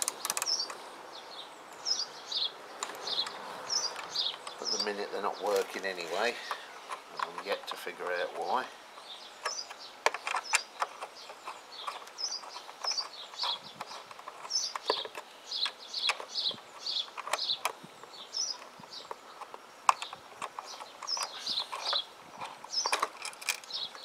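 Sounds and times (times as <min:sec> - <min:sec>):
small bird chirping: 0:00.0 - 0:24.0
hand tools clicking and knocking: 0:09.4 - 0:17.8, 0:18.5 - 0:24.0.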